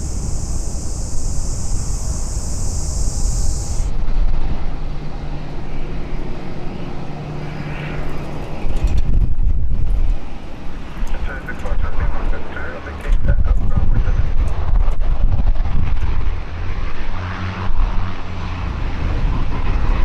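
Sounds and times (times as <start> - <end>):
high steady hiss: 0.0 - 4.0
aircraft engine rumbling: 0.0 - 20.0.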